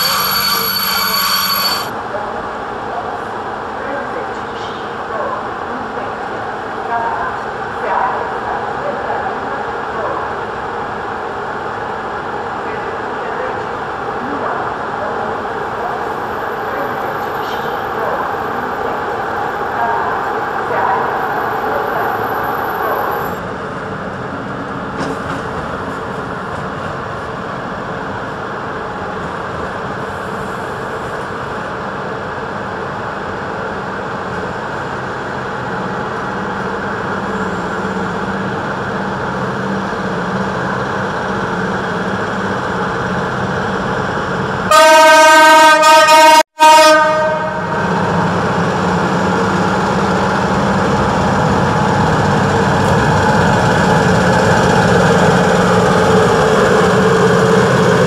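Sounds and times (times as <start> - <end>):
locomotive rumbling: 0.0 - 45.6, 46.2 - 58.0
locomotive horn: 44.7 - 47.8.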